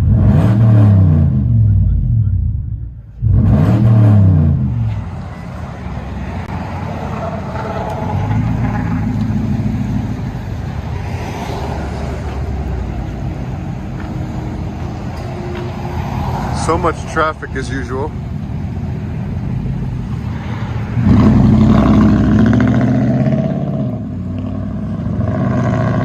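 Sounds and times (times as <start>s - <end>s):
engine revving through exhaust: 0.0s - 2.6s, 3.2s - 5.1s, 20.7s - 26.0s.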